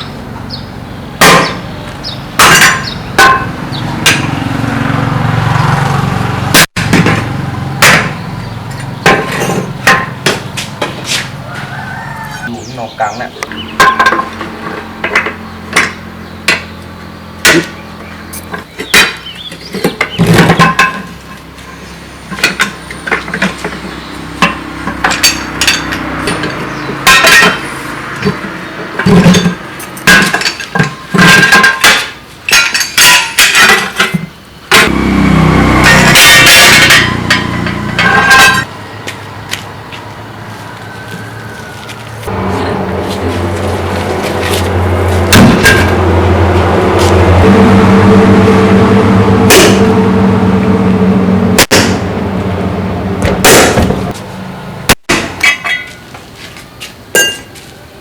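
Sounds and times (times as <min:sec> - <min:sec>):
metal clanks: 0:02.4 - 0:04.5, 0:06.5 - 0:11.3, 0:13.5 - 0:35.0, 0:35.8 - 0:38.7, 0:42.2 - 0:47.4, 0:55.1 - 0:56.1
loud steady mechanical noise: 0:12.4 - 0:55.9.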